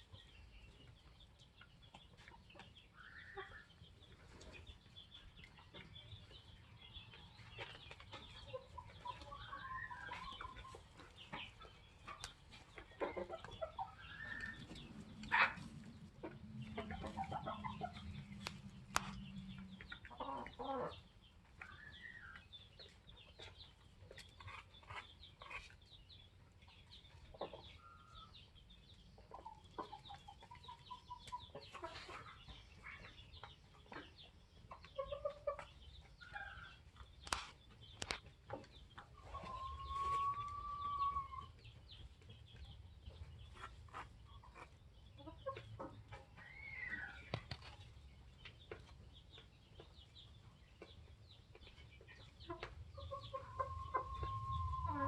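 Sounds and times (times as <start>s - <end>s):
chickens clucking and calling: 0.0s - 55.0s.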